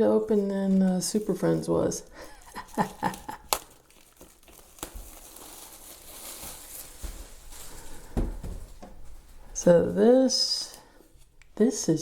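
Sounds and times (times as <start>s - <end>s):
packaging rustling and sliding: 0.3s - 9.6s
soft thumps: 8.0s - 9.4s.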